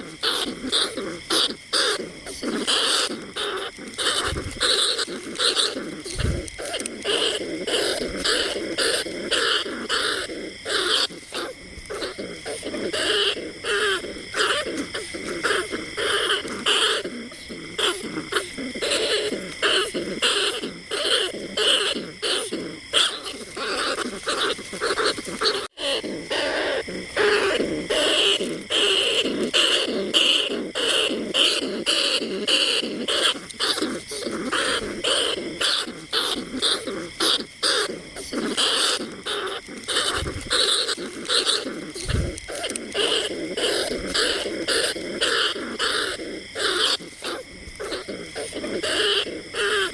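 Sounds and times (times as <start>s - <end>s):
rats squeaking: 0.0s - 49.9s.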